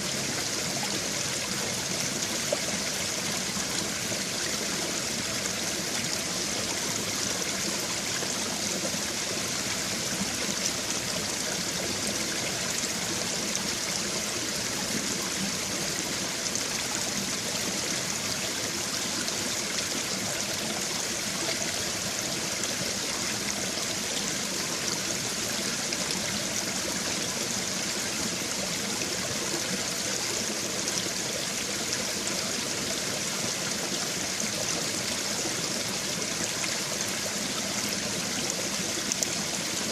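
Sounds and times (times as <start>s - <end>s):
stream water trickling over stones: 0.0s - 39.9s.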